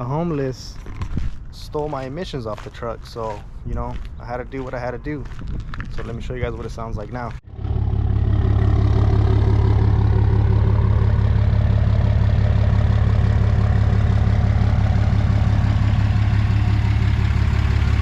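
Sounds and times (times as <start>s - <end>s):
diesel engine idling: 6.3s - 18.0s.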